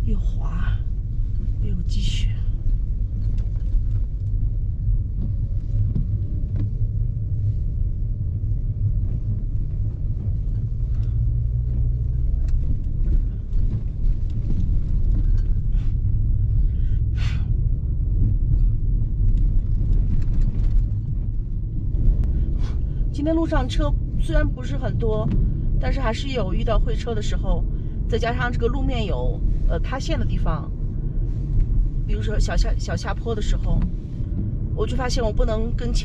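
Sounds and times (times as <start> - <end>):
car cabin road rumble: 0.0 - 36.0
knocks and rattles over bumps: 8.9 - 16.6.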